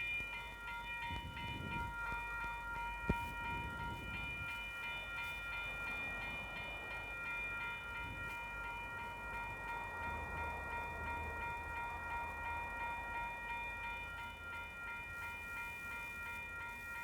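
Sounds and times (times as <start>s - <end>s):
train rumbling: 0.0s - 16.7s
level crossing bells ringing: 0.0s - 17.0s.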